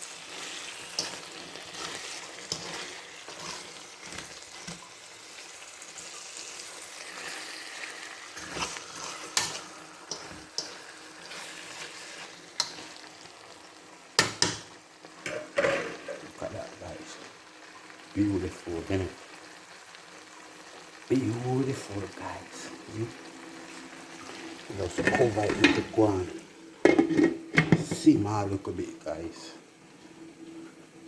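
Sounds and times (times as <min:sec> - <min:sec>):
food sizzling in frying pan: 0:00.0 - 0:31.0
utensil clicking in pan: 0:12.6 - 0:12.9.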